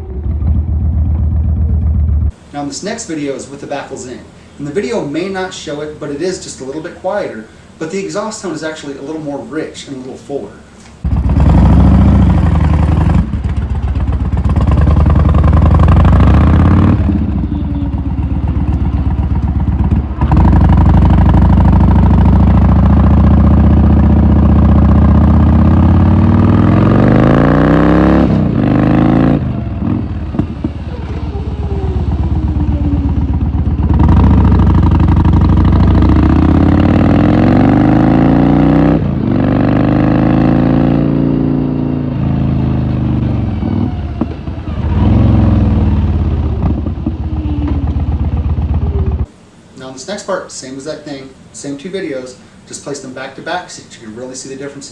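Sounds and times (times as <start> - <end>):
motorcycle engine on the road: 0.0 - 2.4, 11.0 - 49.3.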